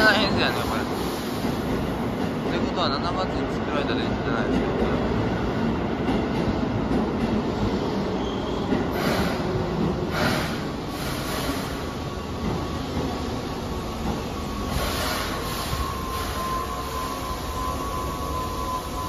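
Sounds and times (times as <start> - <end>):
train wheels rumbling on rail: 0.0 - 19.0
wheels and brakes squealing: 8.0 - 9.5, 14.2 - 19.0.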